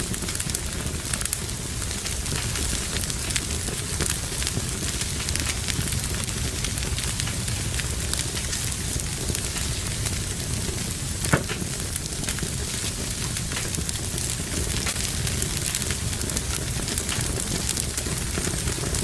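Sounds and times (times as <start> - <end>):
low rumble of flames: 0.0 - 19.0
wood fire crackling: 0.0 - 19.0
wood snapping and popping: 11.2 - 19.0.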